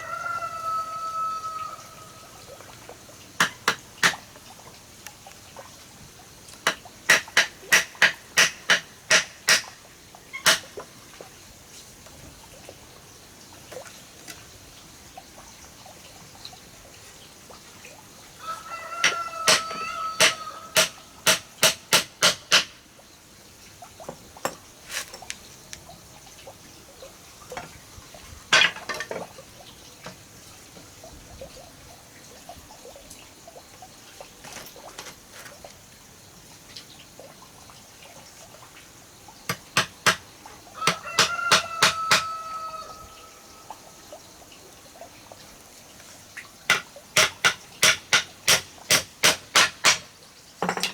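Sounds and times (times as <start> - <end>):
rooster crowing: 0.0 - 2.4, 18.4 - 21.0, 40.8 - 43.7
sharp knocks: 3.4 - 4.2, 6.6 - 9.7, 19.0 - 22.8, 46.7 - 50.1.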